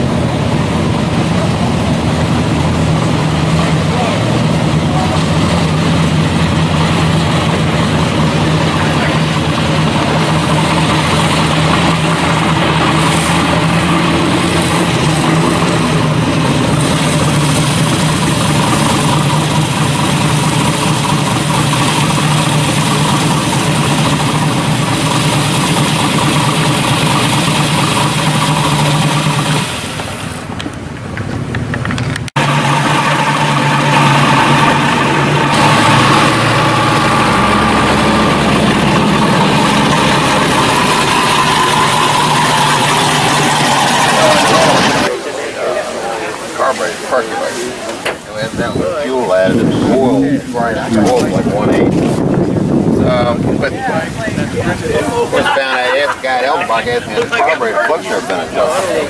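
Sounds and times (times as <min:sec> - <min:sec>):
supercharged engine idling: 0:00.0 - 0:30.5, 0:31.5 - 0:45.2.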